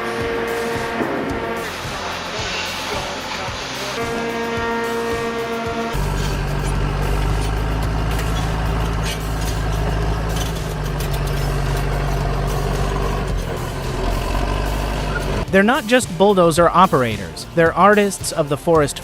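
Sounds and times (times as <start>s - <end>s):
diesel machine engine running: 0.0s - 15.5s.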